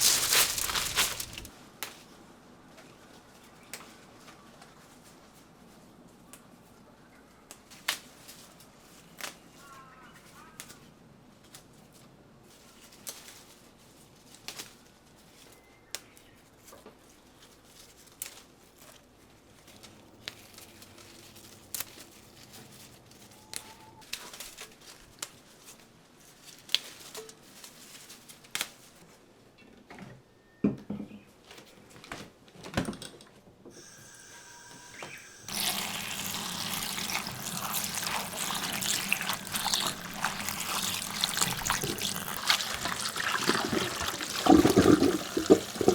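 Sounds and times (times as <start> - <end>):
water running and splashing: 0.0 - 1.5, 35.0 - 45.9.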